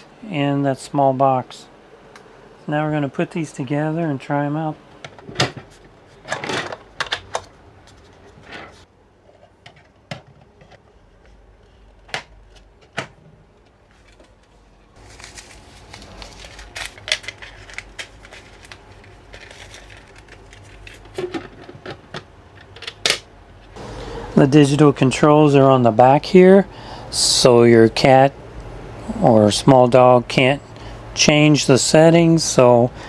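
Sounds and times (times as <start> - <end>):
rustling: 5.0 - 22.1
plastic parts clicking: 6.3 - 8.0, 16.8 - 23.3.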